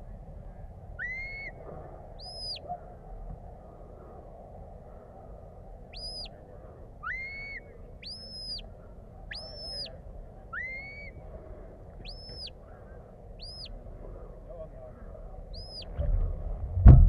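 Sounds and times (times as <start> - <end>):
shepherd's whistle calls: 1.0 - 1.6, 2.2 - 2.6, 5.9 - 6.3, 7.0 - 8.6, 9.3 - 9.9, 10.5 - 11.2, 12.0 - 12.6, 13.4 - 13.7, 15.5 - 15.9.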